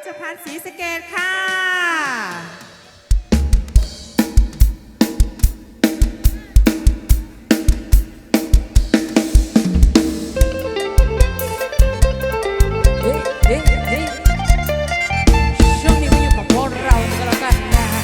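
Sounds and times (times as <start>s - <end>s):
keyboard notes: 10.1s - 18.0s
held bass notes: 10.2s - 18.0s.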